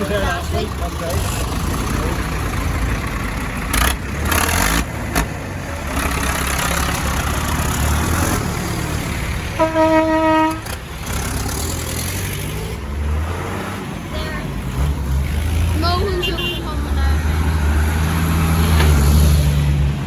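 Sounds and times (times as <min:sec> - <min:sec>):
tractor engines rumbling: 0:00.0 - 0:20.0
vehicle horn: 0:09.6 - 0:10.8, 0:16.2 - 0:16.8.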